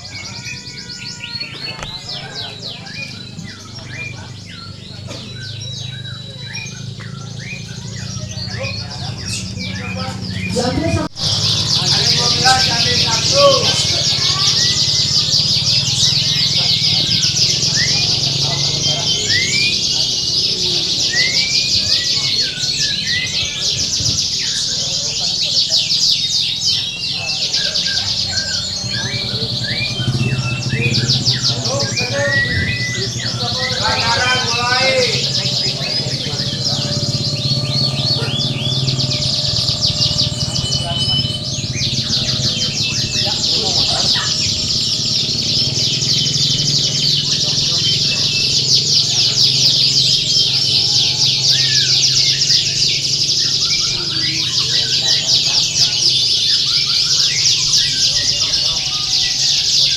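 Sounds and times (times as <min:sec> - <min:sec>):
canaries singing: 0:00.0 - 0:59.9
steady low hum: 0:27.1 - 0:55.2.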